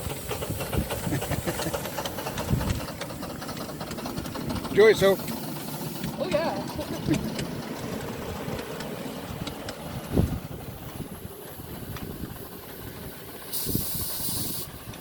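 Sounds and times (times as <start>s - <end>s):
miniature train rumbling: 0.0s - 15.0s
burst of hissing: 5.1s - 6.2s, 11.5s - 14.9s.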